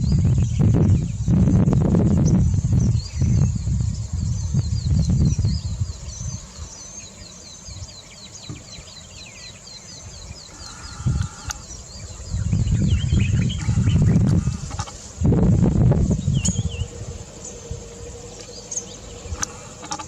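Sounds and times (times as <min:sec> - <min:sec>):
high insect hiss: 0:00.0 - 0:20.0
bird calls: 0:02.2 - 0:15.2, 0:16.1 - 0:20.0
low rumble: 0:10.9 - 0:19.7.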